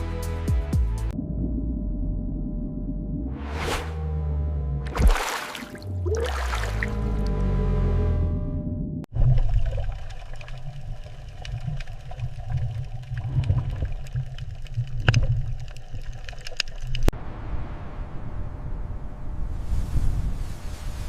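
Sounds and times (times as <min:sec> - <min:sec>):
music: 0:00.0 - 0:01.2
low rumbling water: 0:01.1 - 0:19.7.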